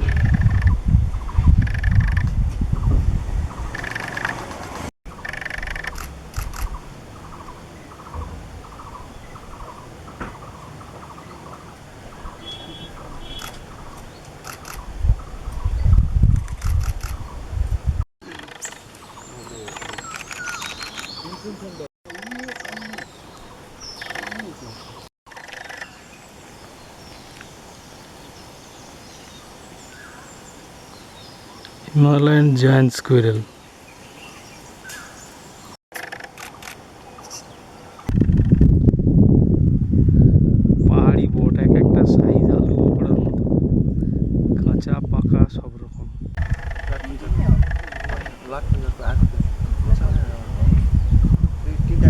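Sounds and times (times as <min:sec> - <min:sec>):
camera shutter clicks: 0:05.3 - 0:06.7, 0:36.0 - 0:36.8.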